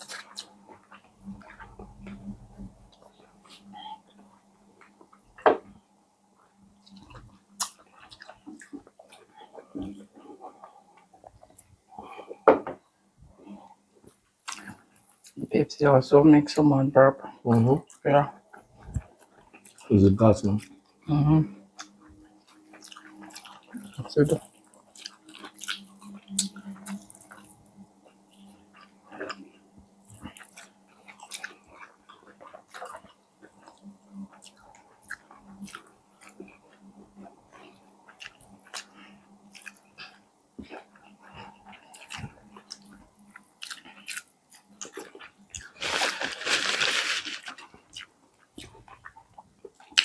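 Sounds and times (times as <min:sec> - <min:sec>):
crunchy chewing and biting: 0:13.6 - 0:15.4, 0:21.8 - 0:50.0.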